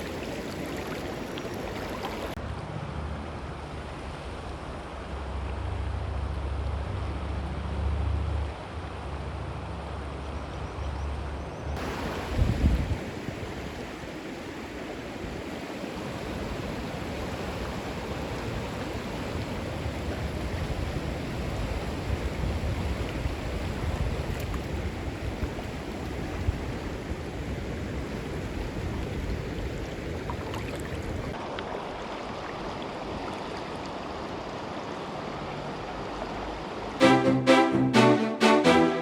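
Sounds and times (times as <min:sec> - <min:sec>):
creek rapids rushing: 0:11.8 - 0:22.2, 0:36.9 - 0:39.0.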